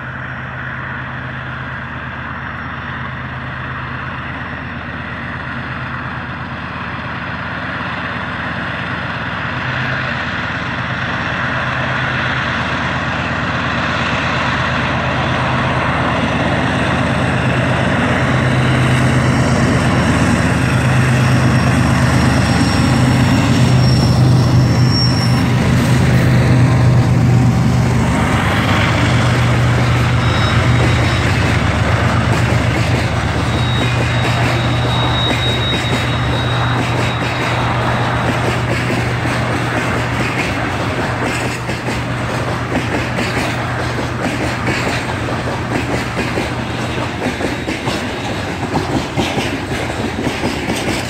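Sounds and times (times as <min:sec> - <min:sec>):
deep diesel engine drone: 0:00.0 - 0:35.2
rumbling wheel and rail noise: 0:00.0 - 0:51.0
faint high wheel squeals: 0:20.6 - 0:25.6, 0:28.7 - 0:38.3.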